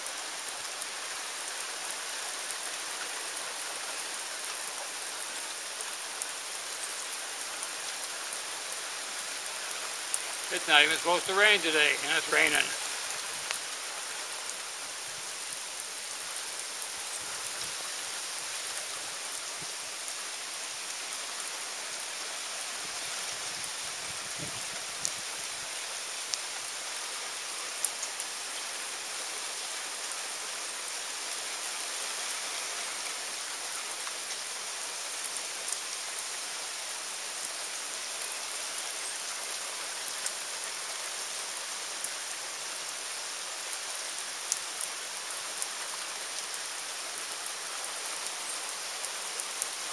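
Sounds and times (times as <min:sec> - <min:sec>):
steady rain hiss: 0:00.0 - 0:49.9.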